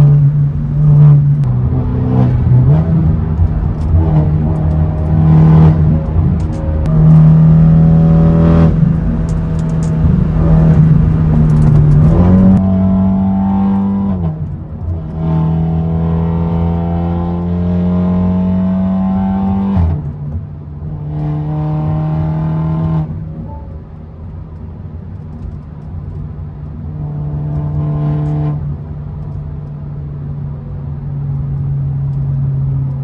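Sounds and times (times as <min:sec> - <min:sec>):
car engine accelerating through gears: 0:00.0 - 0:23.6.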